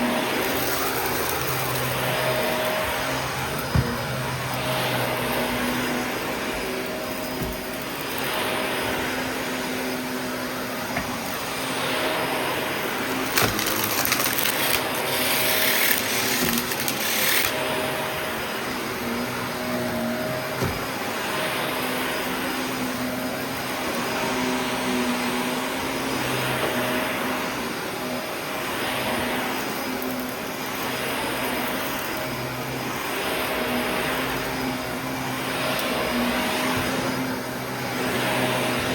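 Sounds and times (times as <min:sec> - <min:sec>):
vacuum cleaner running: 0:00.0 - 0:38.9
debris rattling into vacuum: 0:13.2 - 0:17.5.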